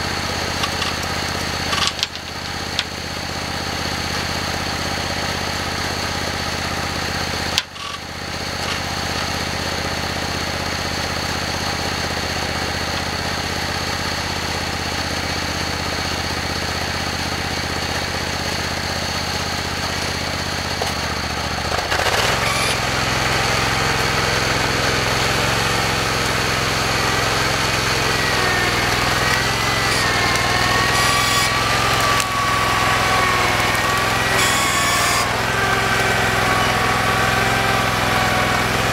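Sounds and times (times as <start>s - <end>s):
tractor engine running: 0.0s - 38.9s
wavering whine: 19.5s - 37.0s.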